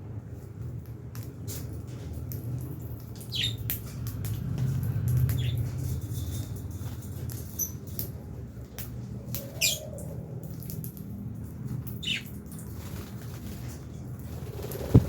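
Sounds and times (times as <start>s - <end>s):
steady low hum: 12.7s - 15.0s.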